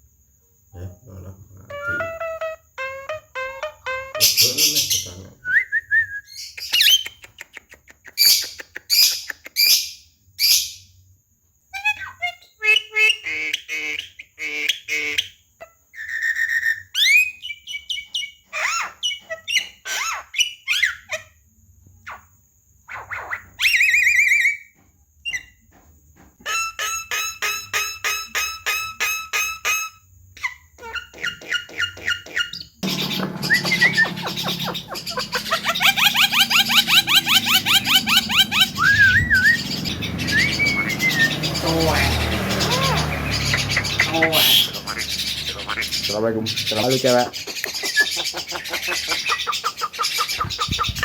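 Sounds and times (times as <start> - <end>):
bird singing varied song: 0.8 - 7.3, 31.6 - 51.0.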